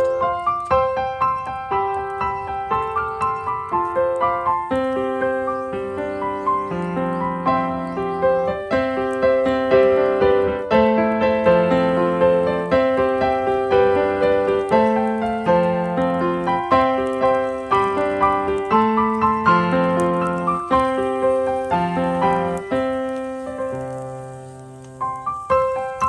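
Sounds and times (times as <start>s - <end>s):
gentle piano music: 0.0s - 26.0s.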